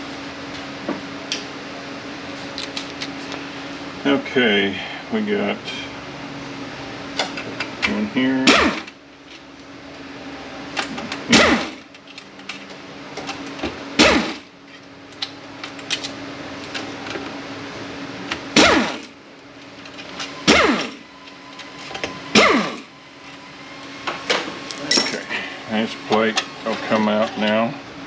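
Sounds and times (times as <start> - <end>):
metal parts clicking: 24.7 - 25.3.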